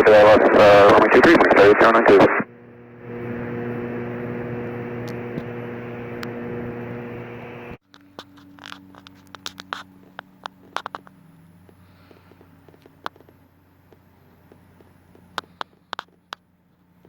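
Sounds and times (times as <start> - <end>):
radio static hiss: 0.0 - 5.0
low hum: 0.0 - 17.0
small clicks and crackles: 7.8 - 17.0.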